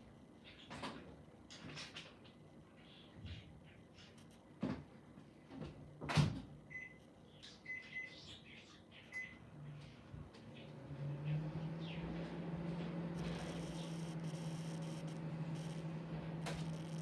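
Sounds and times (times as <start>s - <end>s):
microwave oven humming: 9.0s - 17.0s
keypad beeps: 13.2s - 17.0s.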